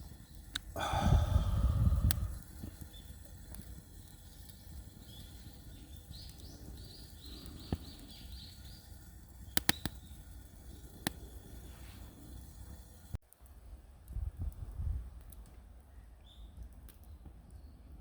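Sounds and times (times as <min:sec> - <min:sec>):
wood fire crackling pops: 0:00.0 - 0:13.4.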